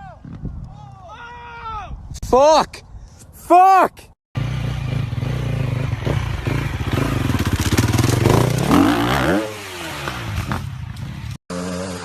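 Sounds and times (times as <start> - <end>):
dirt bike engine revving: 4.4 - 12.0.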